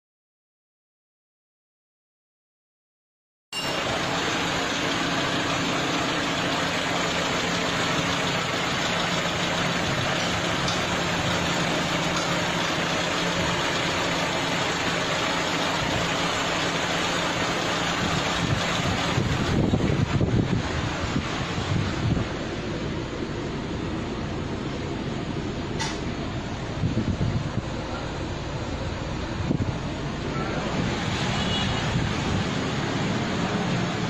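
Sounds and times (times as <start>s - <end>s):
car engine idling: 3.6s - 31.0s.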